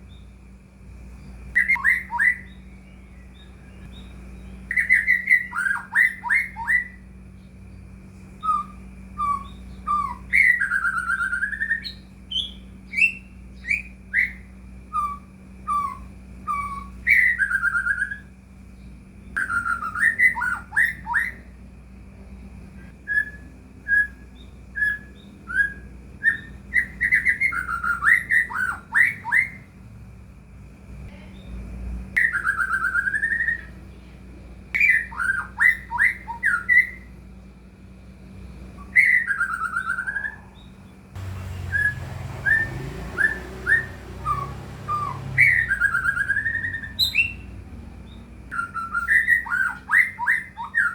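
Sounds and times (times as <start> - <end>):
faint steady hum: 0.0 - 50.9
bird singing whistles: 1.6 - 7.1, 8.4 - 18.4, 19.3 - 21.6, 23.0 - 29.7, 32.2 - 33.8, 34.8 - 37.1, 38.8 - 40.8, 41.4 - 50.9.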